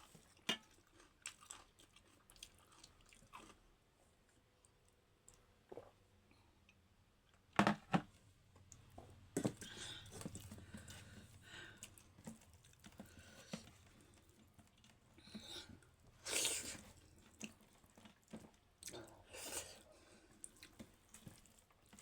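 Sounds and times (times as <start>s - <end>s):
chewing: 0.0s - 3.7s, 9.6s - 22.0s.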